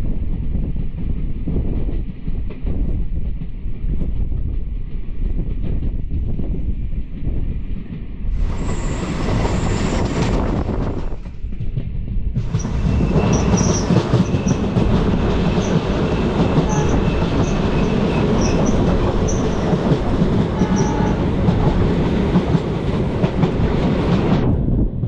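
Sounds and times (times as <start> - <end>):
train wheels rumbling on track: 0.0 - 25.0
short high squeaks: 16.6 - 19.6.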